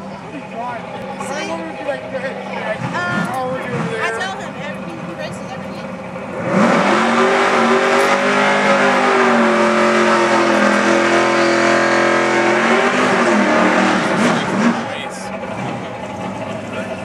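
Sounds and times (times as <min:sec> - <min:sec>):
car engine at high revs: 0:00.0 - 0:17.0
engine revving blips: 0:00.0 - 0:17.0.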